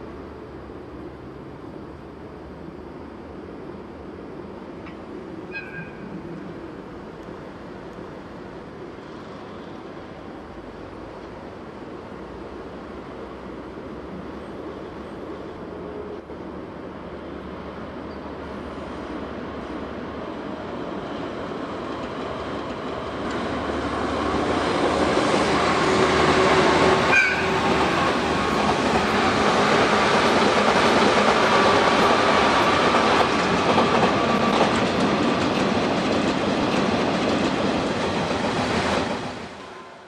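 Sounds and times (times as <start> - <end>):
train wheels clacking on rail joints: 24.2 - 39.4.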